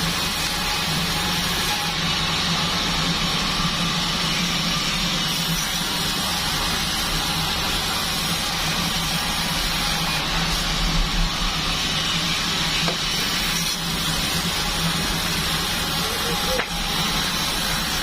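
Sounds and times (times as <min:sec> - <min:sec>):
band sawmill running: 0:00.0 - 0:18.0.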